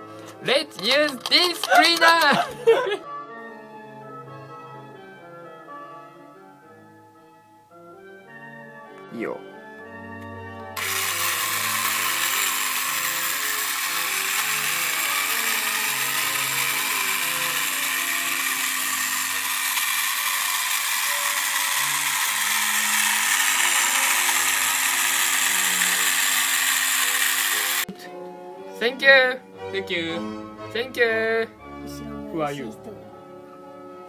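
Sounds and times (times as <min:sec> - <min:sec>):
vacuum cleaner running: 0:10.8 - 0:27.9.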